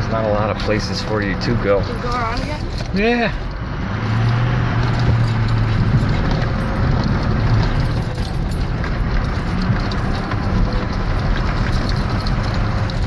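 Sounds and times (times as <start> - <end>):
diesel truck engine droning: 0.0 - 13.0.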